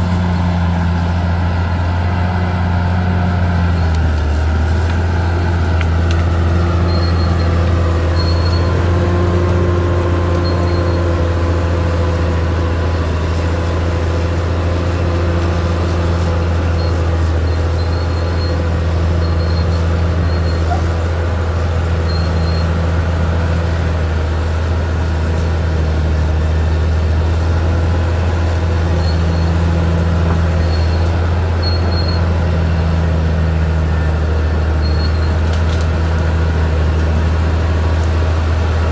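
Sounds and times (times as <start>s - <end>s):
bulldozer diesel engine drone: 0.0s - 38.9s.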